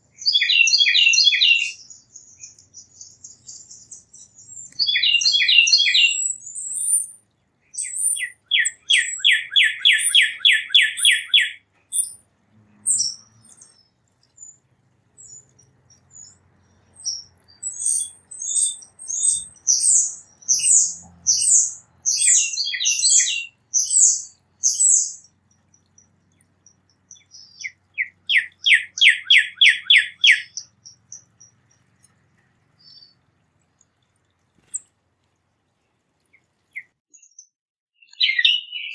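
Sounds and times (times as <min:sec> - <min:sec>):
songbird trilling: 0:00.0 - 0:34.9.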